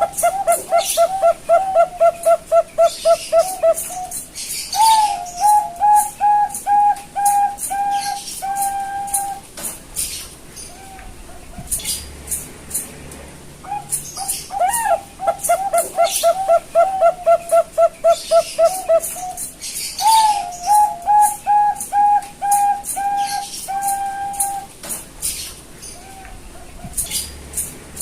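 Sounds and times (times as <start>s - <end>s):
dove cooing: 0.0s - 9.5s, 13.6s - 24.8s.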